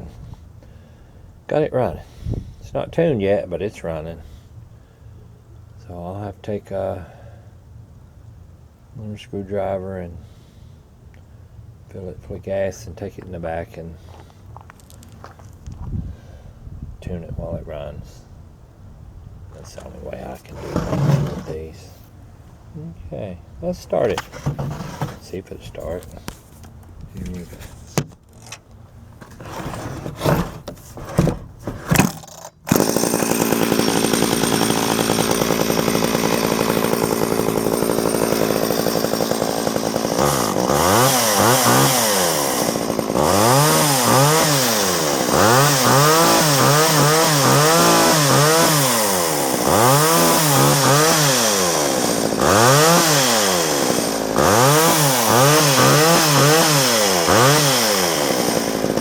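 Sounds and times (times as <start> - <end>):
chainsaw pull-start cord: 20.5 - 21.6, 24.1 - 25.3, 29.2 - 59.0
chainsaw engine revving: 20.5 - 21.7, 31.9 - 59.0.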